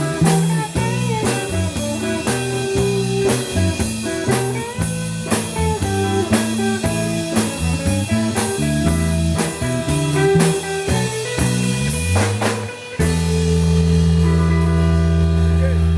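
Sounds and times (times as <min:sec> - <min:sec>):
drum kit steady beat: 0:00.0 - 0:15.8
bass guitar: 0:00.0 - 0:15.9
electric guitar lines: 0:00.0 - 0:15.9.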